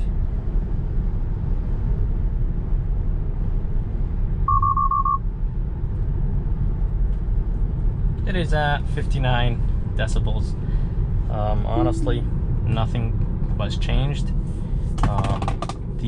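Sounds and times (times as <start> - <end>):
car cabin road and wind rumble: 0.0 - 4.5, 5.2 - 16.0
short beeps: 4.5 - 5.2, 11.8 - 12.3.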